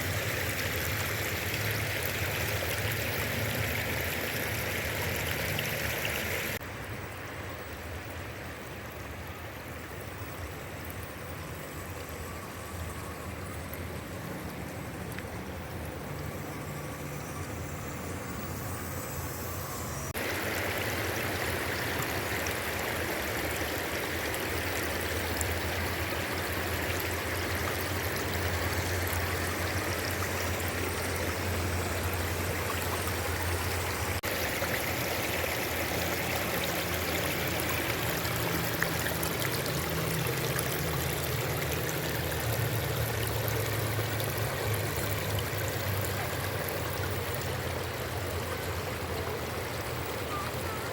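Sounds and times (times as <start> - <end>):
water rushing over waterfall: 20.2 - 50.9.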